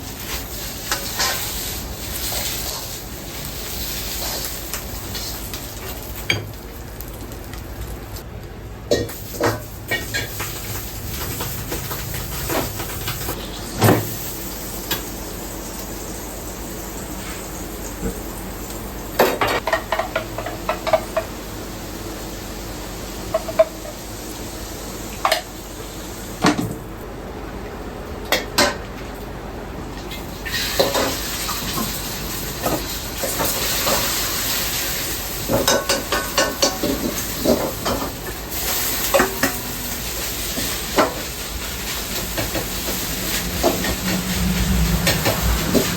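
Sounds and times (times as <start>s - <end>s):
food frying hiss: 0.0s - 8.3s, 8.9s - 26.5s, 30.1s - 45.9s
steady kitchen hum: 0.0s - 45.9s
utensils pots and bowls clattering: 8.9s - 14.3s, 19.2s - 21.4s, 23.3s - 24.0s, 30.1s - 45.9s.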